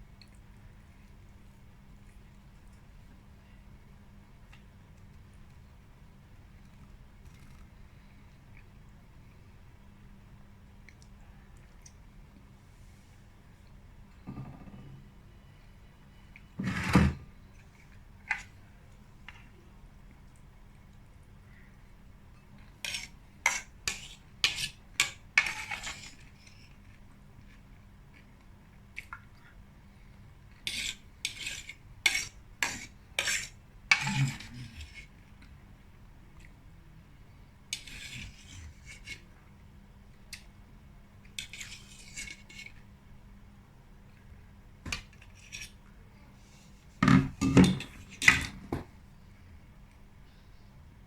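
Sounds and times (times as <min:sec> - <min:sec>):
fork scraping a salad bowl: 0:16.6 - 0:17.1, 0:22.6 - 0:27.5, 0:30.6 - 0:35.2, 0:37.7 - 0:39.3, 0:41.4 - 0:42.8, 0:45.2 - 0:45.8.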